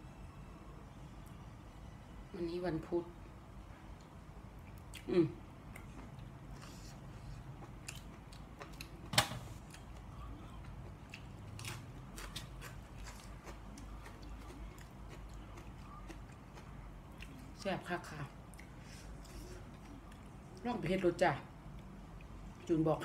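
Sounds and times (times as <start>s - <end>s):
person chewing food: 3.9s - 17.6s, 18.4s - 20.6s.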